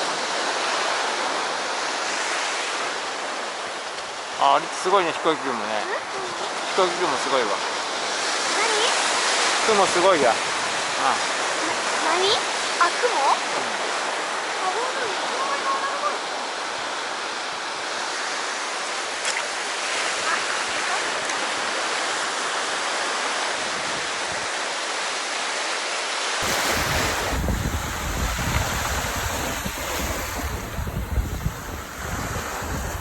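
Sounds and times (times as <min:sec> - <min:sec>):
sea surf on shore: 0:00.0 - 0:33.0
wind buffeting microphone: 0:26.4 - 0:33.0.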